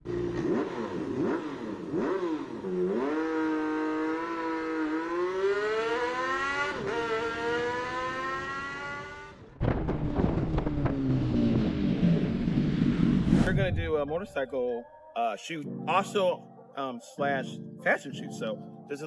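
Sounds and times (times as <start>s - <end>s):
motorcycle engine revving: 0.0s - 13.8s.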